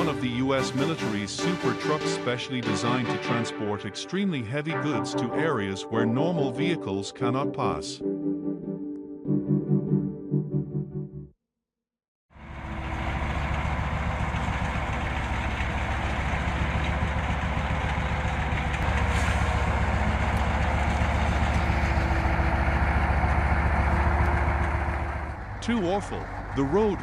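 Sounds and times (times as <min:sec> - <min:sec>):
heavy truck engine running: 0:00.0 - 0:01.6, 0:12.4 - 0:27.0.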